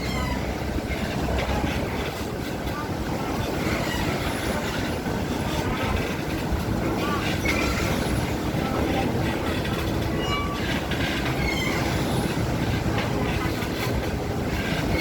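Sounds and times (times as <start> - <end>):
vehicle rumbling in motion: 0.0 - 15.0
faint high squeaks: 10.2 - 12.2.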